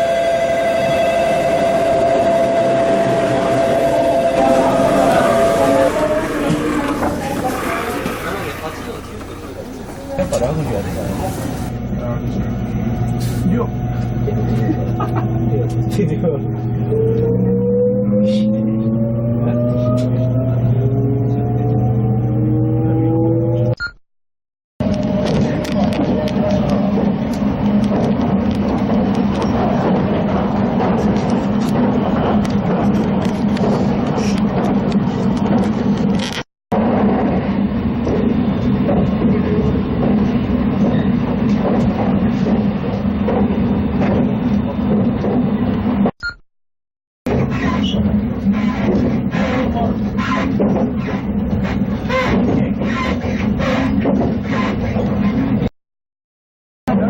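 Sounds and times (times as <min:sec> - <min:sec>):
train rumbling on track: 0:00.0 - 0:23.6, 0:24.8 - 0:46.1, 0:47.3 - 0:55.7
train accelerating hum: 0:00.0 - 0:23.7.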